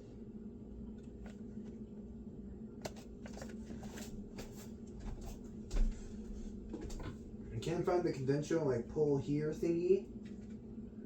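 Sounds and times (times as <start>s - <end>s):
low steady hum: 0.0s - 11.0s
food handling clicks and scrapes: 2.8s - 4.7s.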